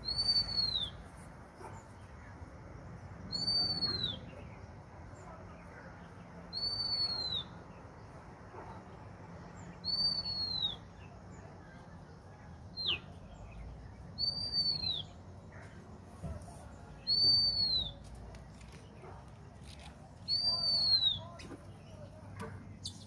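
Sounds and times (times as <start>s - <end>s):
bird whistling high clear note: 0.0s - 1.0s, 9.8s - 10.8s, 14.2s - 15.1s, 17.0s - 18.0s, 20.3s - 21.4s.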